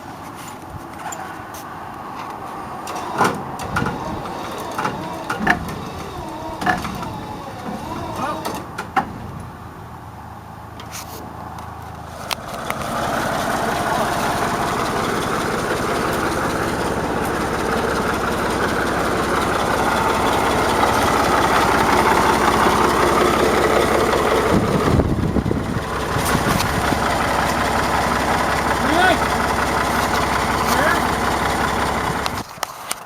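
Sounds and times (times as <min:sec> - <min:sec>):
motor running: 0:02.9 - 0:09.0, 0:12.5 - 0:32.4.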